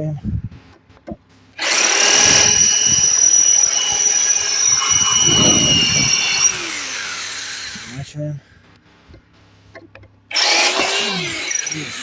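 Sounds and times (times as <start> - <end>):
drill boring through steel: 1.6 - 8.0, 10.3 - 12.0.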